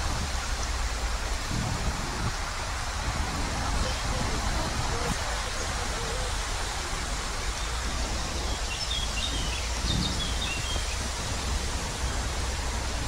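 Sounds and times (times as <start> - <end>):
songbird chirping: 7.5 - 11.2.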